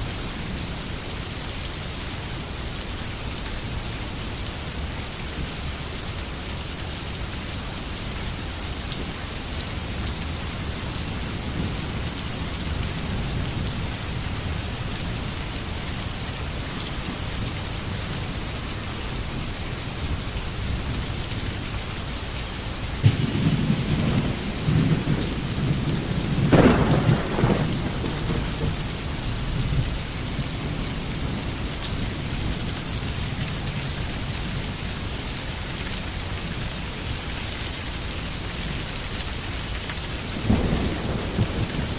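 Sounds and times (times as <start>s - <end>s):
steady rain: 0.0s - 41.9s
thunder rumble: 23.0s - 32.7s, 40.4s - 41.9s.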